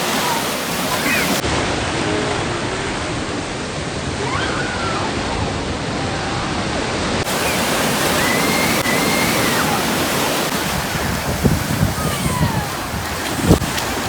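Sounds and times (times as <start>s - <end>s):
breaking surf: 0.0s - 14.0s
wind: 0.0s - 14.0s.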